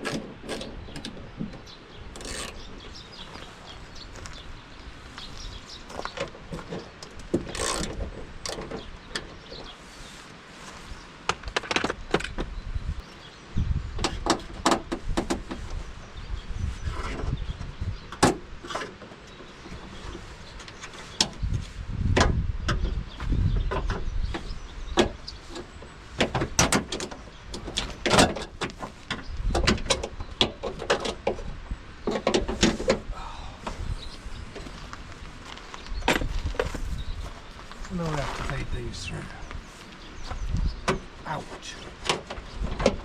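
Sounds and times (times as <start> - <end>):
low rumbling: 32.5 - 42.8.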